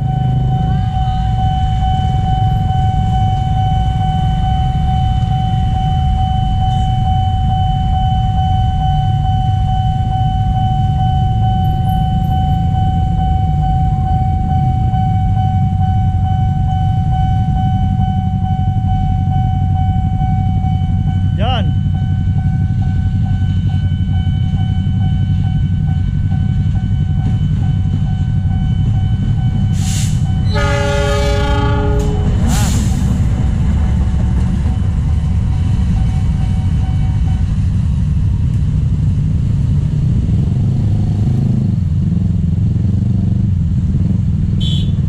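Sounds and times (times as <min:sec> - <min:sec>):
crossing warning alarm: 0:00.0 - 0:45.0
diesel locomotive passing: 0:00.0 - 0:45.0
train horn blast: 0:29.8 - 0:33.0, 0:44.6 - 0:45.0
motorcycle engines revving: 0:30.4 - 0:45.0.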